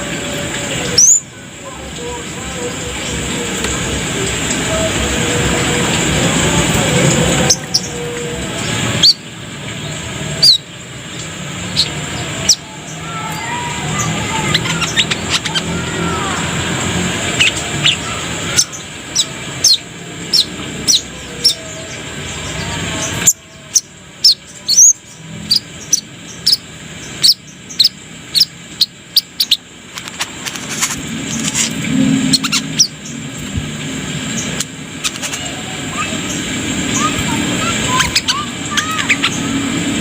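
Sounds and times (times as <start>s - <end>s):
steady background hum: 0.0s - 40.0s
bird giving sharp high chirps: 11.7s - 16.2s, 32.3s - 33.1s, 36.0s - 39.6s.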